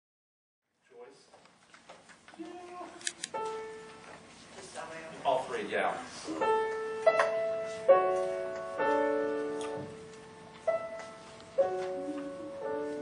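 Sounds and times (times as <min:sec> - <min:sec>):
piano chords ringing: 0:03.3 - 0:04.1, 0:06.3 - 0:13.0.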